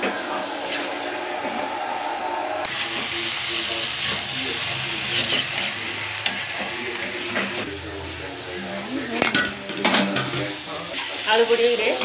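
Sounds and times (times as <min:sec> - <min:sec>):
chicken sizzling in oil: 0:02.6 - 0:12.0.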